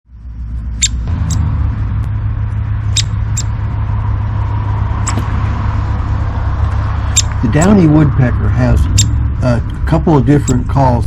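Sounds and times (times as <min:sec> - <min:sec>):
steady low rumble: 0:00.0 - 0:11.0
sharp high-pitched chirps: 0:00.7 - 0:01.5, 0:02.9 - 0:03.6, 0:07.0 - 0:07.4, 0:08.9 - 0:09.2.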